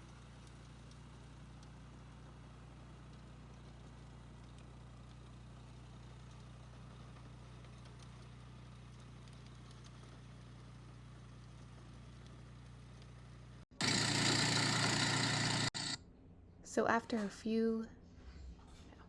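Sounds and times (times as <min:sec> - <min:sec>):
faint tiller engine hum: 0:00.0 - 0:16.0.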